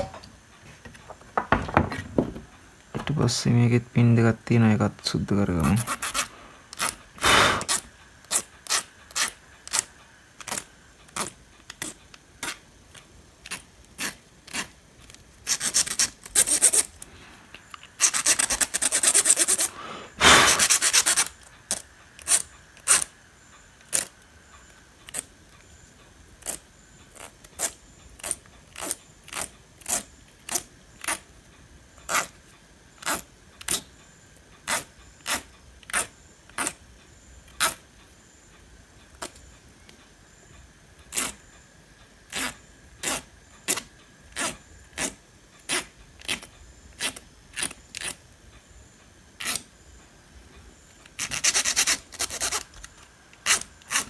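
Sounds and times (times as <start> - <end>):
scraping on metal: 0.0 - 3.5.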